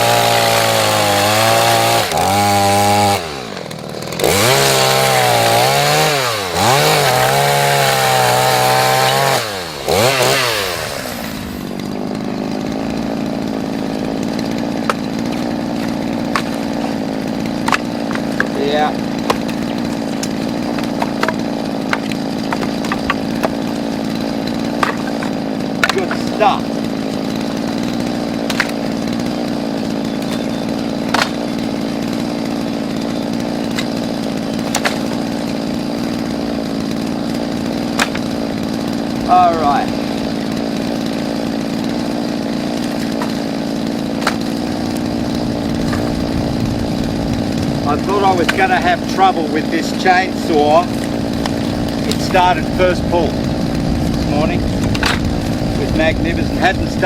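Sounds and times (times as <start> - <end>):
chainsaw cutting wood: 0.0 - 57.0
wood cracking and clicking: 13.8 - 56.3.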